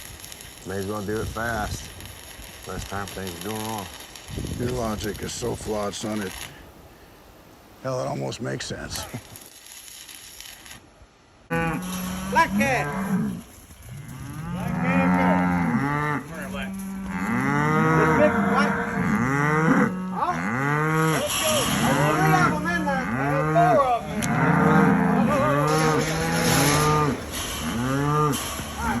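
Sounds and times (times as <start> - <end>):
cattle mooing: 11.5 - 29.0.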